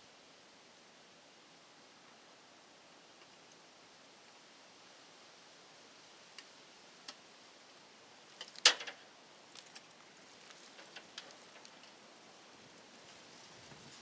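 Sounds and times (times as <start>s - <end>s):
light clicks and taps: 8.4s - 12.0s.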